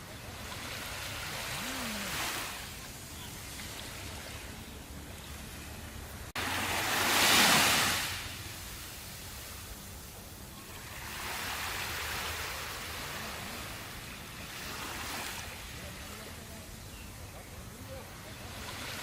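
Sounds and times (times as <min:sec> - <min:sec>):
ocean surf breaking: 0:00.0 - 0:09.7.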